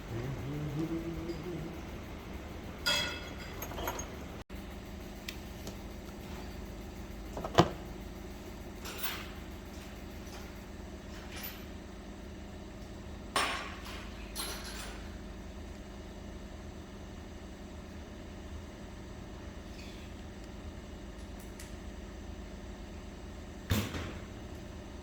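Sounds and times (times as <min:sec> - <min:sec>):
steady low hum: 0:00.0 - 0:25.0
light metal clinks: 0:02.9 - 0:04.2.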